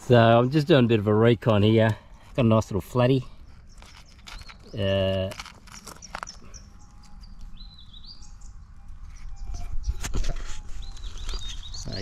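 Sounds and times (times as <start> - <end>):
small birds chirping: 0.0 - 12.0
handling clicks and rumble: 3.6 - 7.6.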